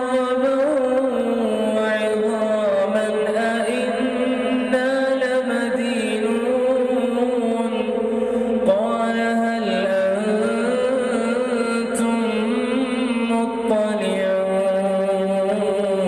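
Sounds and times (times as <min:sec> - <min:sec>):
man reciting melodic chant: 0:00.0 - 0:16.0.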